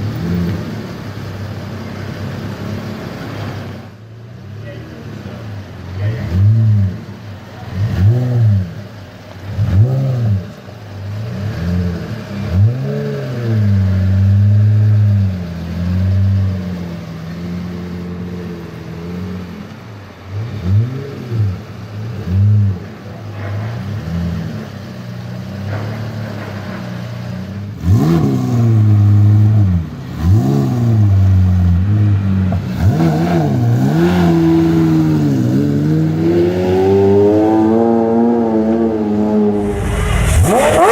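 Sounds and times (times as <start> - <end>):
sports car engine revving: 4.9 - 40.9.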